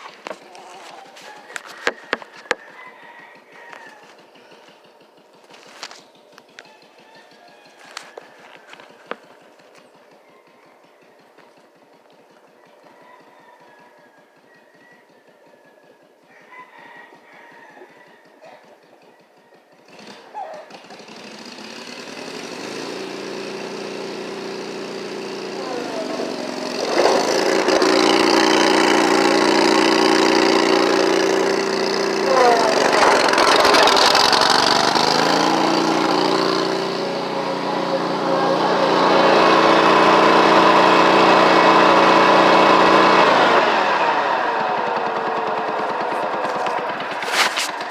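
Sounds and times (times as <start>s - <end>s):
lawn mower engine revving: 0.0s - 2.7s, 3.4s - 10.2s, 19.8s - 47.9s.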